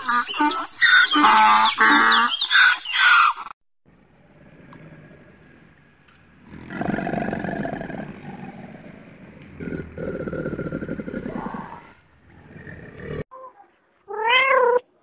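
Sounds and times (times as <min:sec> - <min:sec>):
young crocodilian growling call: 0:06.4 - 0:13.2.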